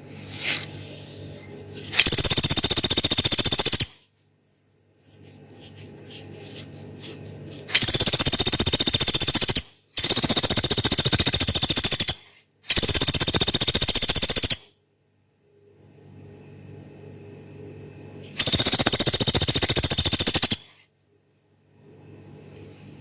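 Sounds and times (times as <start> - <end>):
faint low hum: 0.0 - 13.6, 14.7 - 23.0
woodpecker rattling trills: 1.9 - 4.0, 7.7 - 14.7, 18.4 - 20.8.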